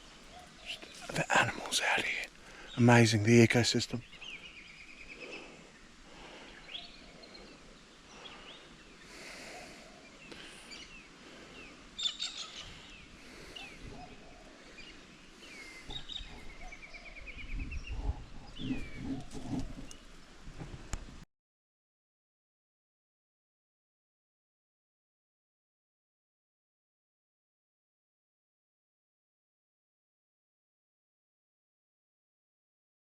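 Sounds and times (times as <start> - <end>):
faint steady hiss: 0.0 - 17.2
small birds chirping and trilling: 0.0 - 20.4.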